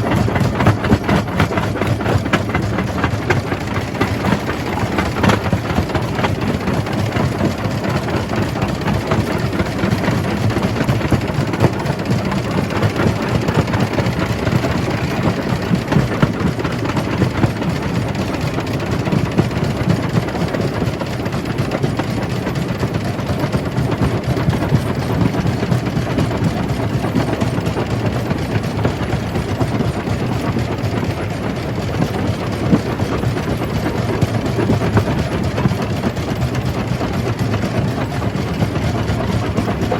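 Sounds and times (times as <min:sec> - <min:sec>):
rock crusher rumbling: 0:00.0 - 0:18.2.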